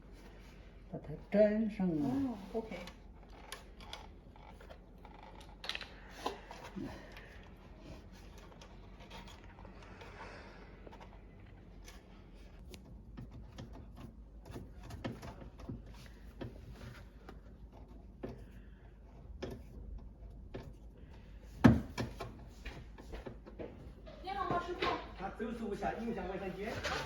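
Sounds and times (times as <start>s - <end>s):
small parts clicking and knocking: 2.8s - 10.2s.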